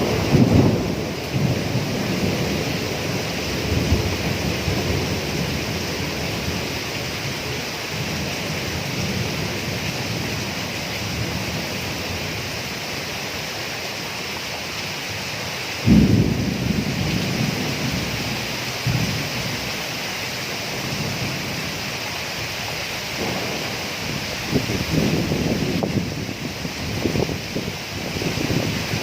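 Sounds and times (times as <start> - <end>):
low thunder rumble: 0.0 - 12.8, 15.8 - 29.0
steady rain hiss: 0.0 - 29.0.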